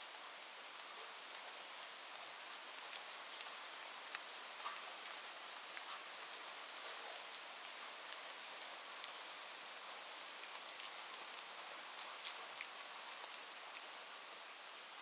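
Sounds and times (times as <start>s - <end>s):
steady rain: 0.0s - 15.0s
raindrops ticking: 2.9s - 7.0s.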